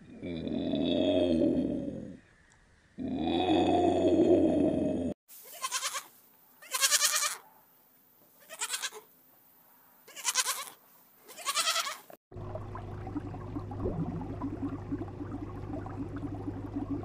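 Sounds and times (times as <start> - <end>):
low rumbling growl: 0.0 - 2.3, 3.0 - 5.2, 12.3 - 17.0
goats bleating: 5.5 - 7.4, 8.4 - 9.0, 10.1 - 12.1.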